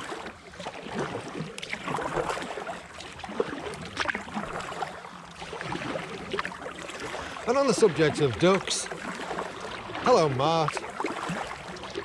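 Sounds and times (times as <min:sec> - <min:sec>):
paddle splashing in water: 0:00.0 - 0:12.0.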